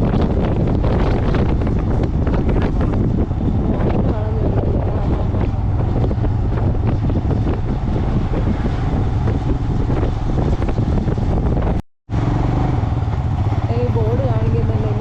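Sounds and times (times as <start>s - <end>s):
motorcycle engine drone: 0.0s - 15.0s
wind buffeting microphone: 0.0s - 15.0s.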